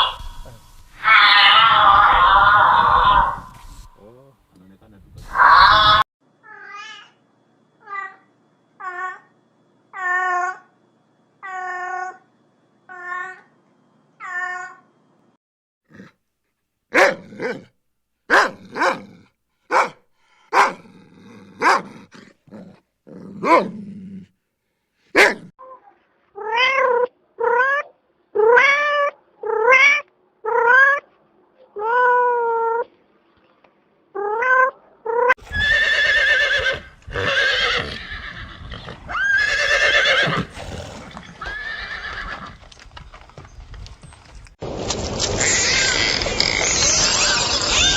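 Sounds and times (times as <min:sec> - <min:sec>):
animal calls: 0:00.0 - 0:03.9, 0:45.2 - 0:47.9.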